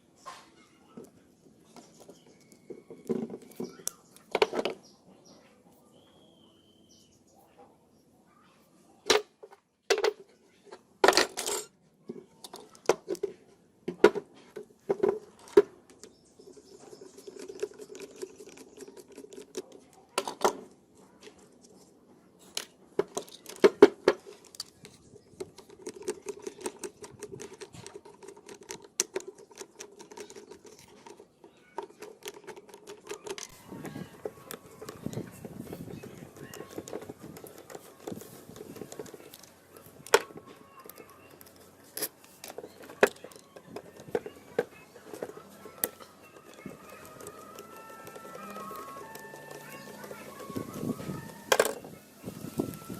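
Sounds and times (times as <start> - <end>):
metal parts clinking on hard surface: 11.0 - 11.7.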